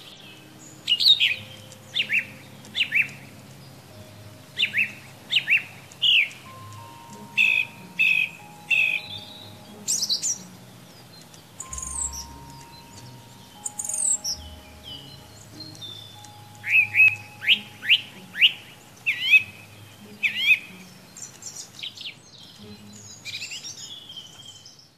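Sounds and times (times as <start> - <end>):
thrush singing: 0.0 - 24.0.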